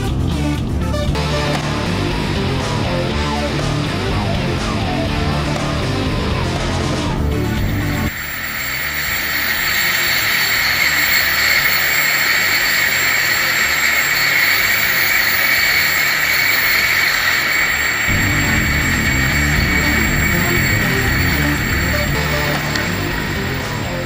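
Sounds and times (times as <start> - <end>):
jet engine roaring with whine: 7.6 - 24.0.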